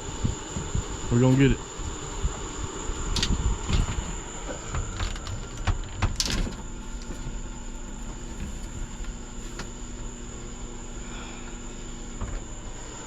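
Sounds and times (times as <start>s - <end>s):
steady high-pitched whine: 0.0s - 13.0s.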